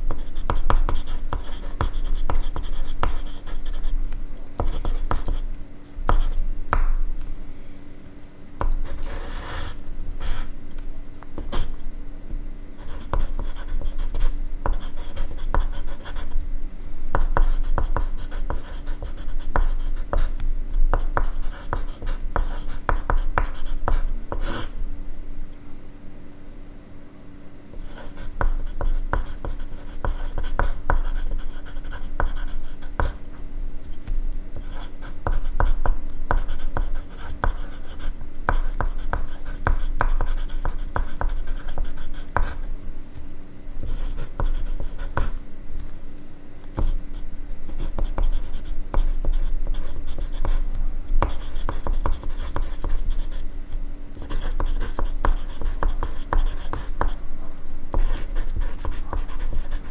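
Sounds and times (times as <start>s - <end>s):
faint steady hum: 0.0s - 59.9s
pencil writing on paper: 0.1s - 3.9s, 4.6s - 7.0s, 8.6s - 10.5s, 11.4s - 11.8s, 12.8s - 16.4s, 17.2s - 24.8s, 27.8s - 33.3s, 34.6s - 42.6s, 43.8s - 45.4s, 46.8s - 50.6s, 51.2s - 53.4s, 54.2s - 57.2s, 57.9s - 59.9s.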